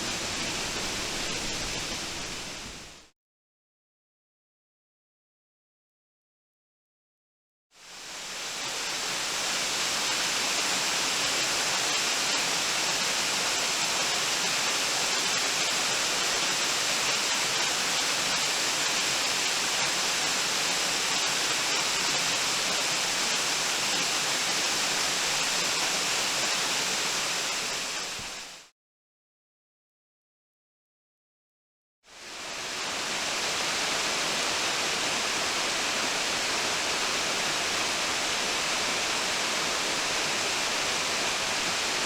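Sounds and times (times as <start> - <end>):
waterfall rushing: 0.0 - 3.0, 32.2 - 42.0.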